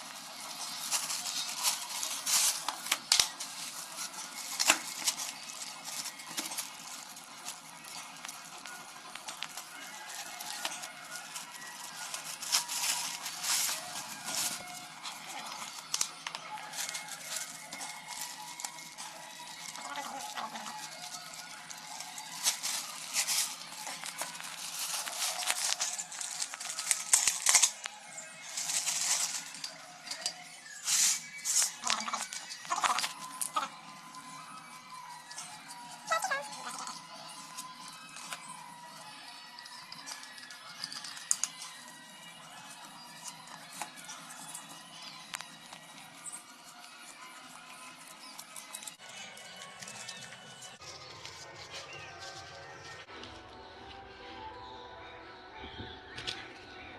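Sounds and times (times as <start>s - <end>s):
packaging rustling: 0.0s - 38.9s.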